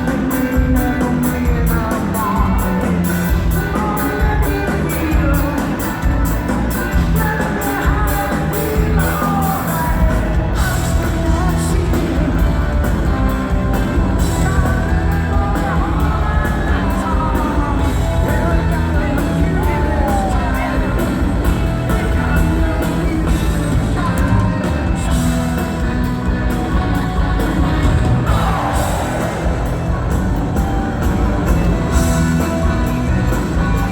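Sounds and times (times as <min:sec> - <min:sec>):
live rock band with singing: 0:00.0 - 0:33.9
crowd whooping and yelling: 0:15.2 - 0:23.2, 0:23.9 - 0:33.9.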